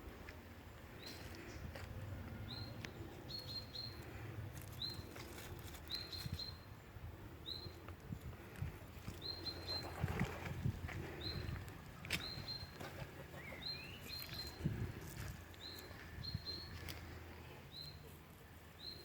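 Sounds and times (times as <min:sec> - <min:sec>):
small bird chirping: 0:13.4 - 0:14.7.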